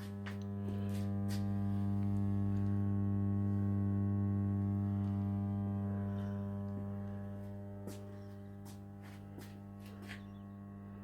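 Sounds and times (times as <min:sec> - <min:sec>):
welder electrical hum: 0:00.0 - 0:11.0.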